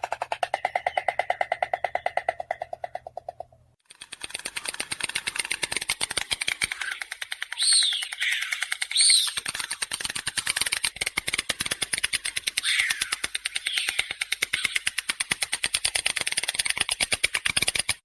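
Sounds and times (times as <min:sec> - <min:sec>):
high falling bird calls: 0:00.0 - 0:03.6, 0:05.5 - 0:11.0, 0:11.6 - 0:15.8
stork bill clattering: 0:00.0 - 0:18.0.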